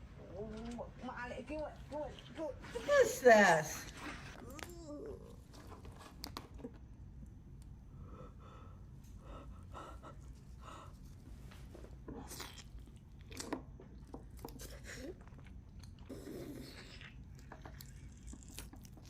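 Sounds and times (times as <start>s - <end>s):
wet chewing and crunching: 11.9s - 19.0s.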